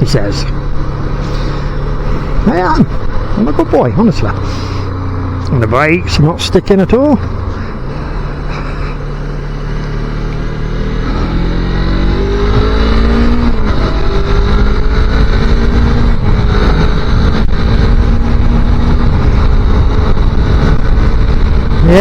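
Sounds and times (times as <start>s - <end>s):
motorcycle engine accelerating: 0.0s - 22.0s
wind buffeting microphone: 11.8s - 22.0s.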